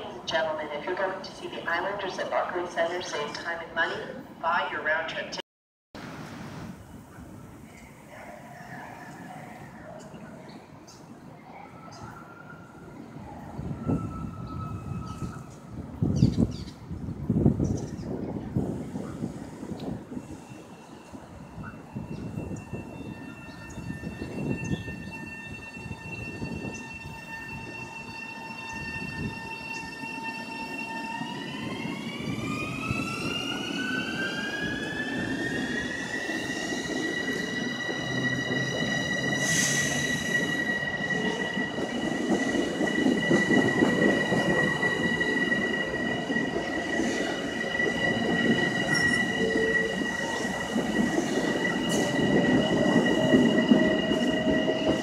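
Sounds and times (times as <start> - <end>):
wheel and rail rumble: 12.7 - 55.0.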